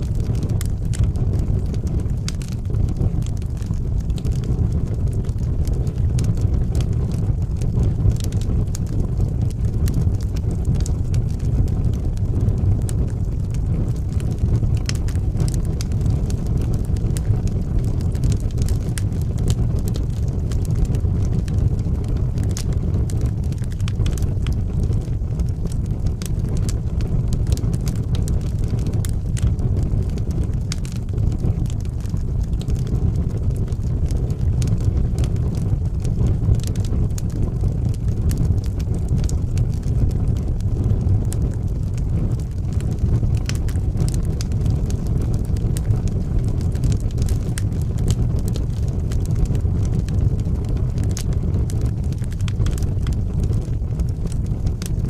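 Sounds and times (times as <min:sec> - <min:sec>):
fire crackling and popping: 0:00.0 - 0:55.0
low rumble of fire: 0:00.0 - 0:55.0.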